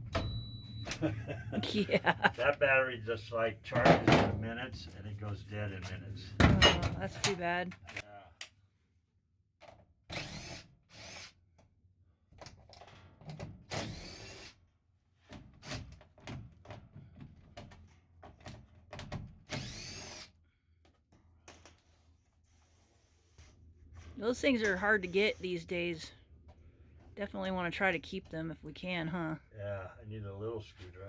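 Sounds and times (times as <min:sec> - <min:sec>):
cordless drill whining: 0:10.1 - 0:11.3, 0:13.7 - 0:14.6, 0:19.5 - 0:20.3.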